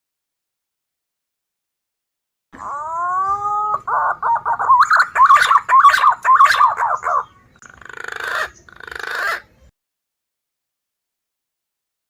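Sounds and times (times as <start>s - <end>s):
hoarse rough bird call: 2.6s - 9.5s
pigeon whistling song: 2.6s - 9.5s.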